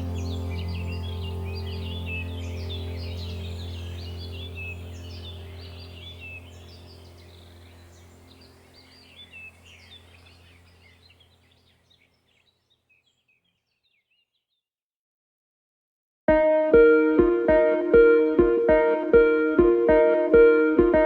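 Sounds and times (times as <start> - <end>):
low steady hum: 0.0 - 11.6
small birds chirping: 0.0 - 14.6.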